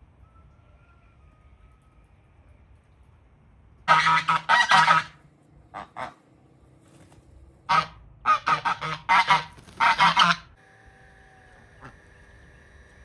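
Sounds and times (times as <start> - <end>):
geese honking: 3.9 - 5.2, 7.7 - 10.5.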